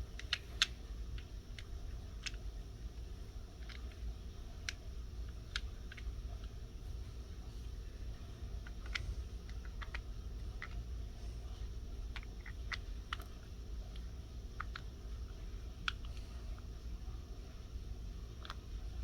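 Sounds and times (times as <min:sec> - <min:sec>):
low hum: 0:00.0 - 0:19.0
plastic bricks clicking together: 0:00.2 - 0:02.5, 0:03.6 - 0:04.0, 0:04.6 - 0:06.5, 0:08.6 - 0:10.0, 0:12.1 - 0:15.0, 0:18.4 - 0:18.7.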